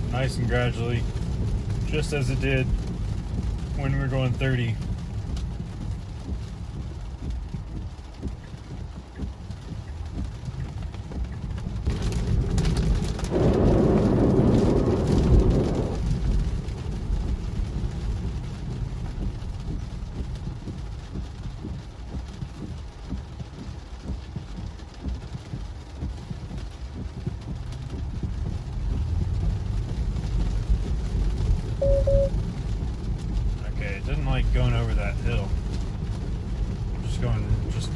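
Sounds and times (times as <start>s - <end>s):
rain hiss: 0.0s - 37.9s
tyres rumbling on wet road: 0.0s - 37.9s.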